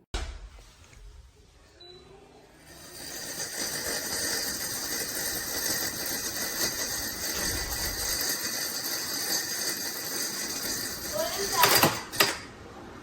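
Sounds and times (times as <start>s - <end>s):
heater fan blowing air: 2.6s - 13.0s.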